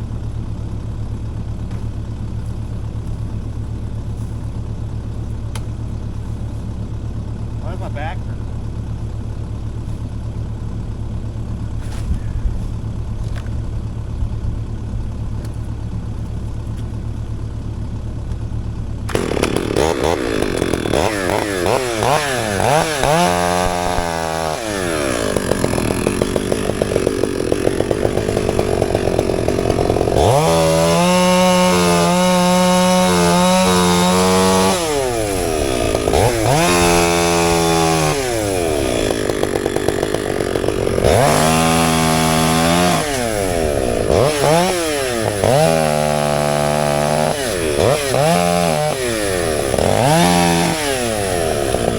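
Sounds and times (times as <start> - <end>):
engine idling: 0.0 - 51.9
chainsaw cutting wood: 1.6 - 8.1, 11.0 - 13.8, 15.2 - 17.4, 18.1 - 51.9.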